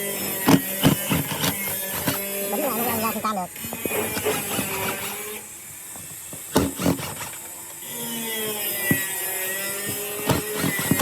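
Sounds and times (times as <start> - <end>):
small motor whining: 0.0 - 11.0.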